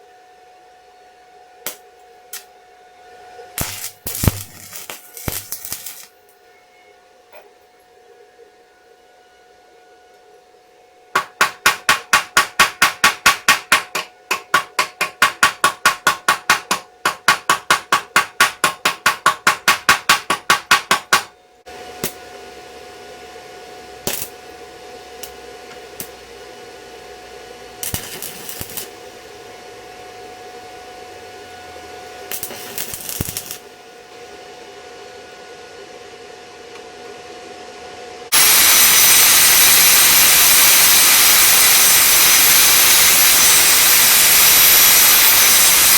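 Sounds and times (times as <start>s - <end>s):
welding arc crackling hiss: 3.6s - 6.3s, 24.0s - 24.5s, 27.8s - 29.1s, 32.3s - 33.7s, 38.3s - 45.9s
rapid metal tapping: 11.2s - 21.3s.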